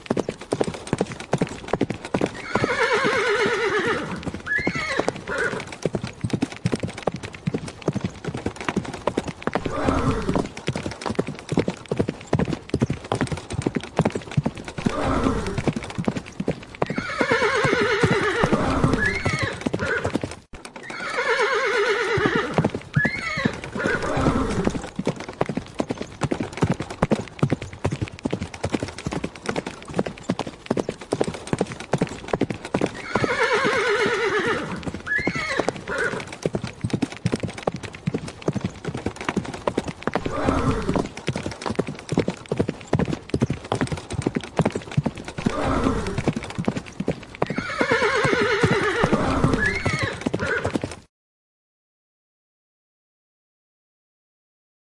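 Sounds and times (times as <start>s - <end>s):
horse hooves clip-clopping: 0.0s - 51.1s
horse whinnying: 2.2s - 5.8s, 9.6s - 10.6s, 14.8s - 15.8s, 16.8s - 20.2s, 20.8s - 24.9s, 32.7s - 36.6s, 40.1s - 41.2s, 45.4s - 46.4s, 47.4s - 50.9s.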